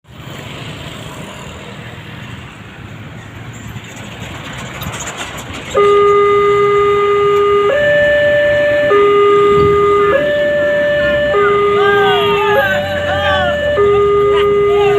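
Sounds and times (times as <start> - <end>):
train rumbling: 0.2 - 14.9
two-note train horn: 5.7 - 14.9.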